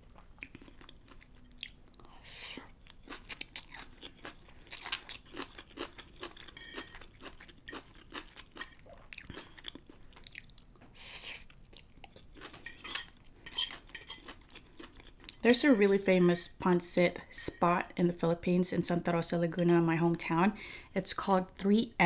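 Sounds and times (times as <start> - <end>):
close chewing with wet mouth clicks: 0.4 - 2.1, 2.8 - 10.7.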